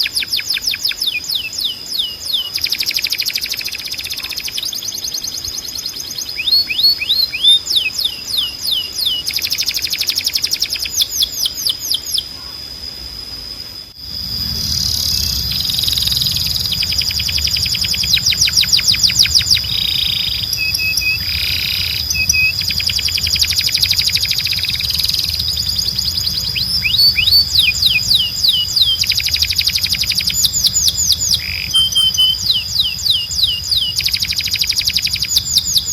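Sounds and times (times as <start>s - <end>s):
canary singing: 0.0s - 12.5s, 14.0s - 35.9s
low hum: 12.2s - 35.9s.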